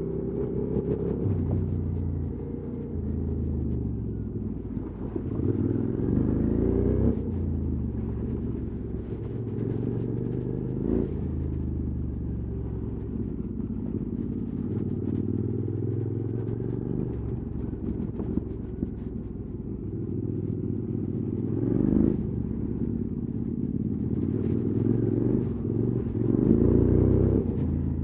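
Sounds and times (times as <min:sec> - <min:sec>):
motorcycle engine revving: 0:19.9 - 0:28.0.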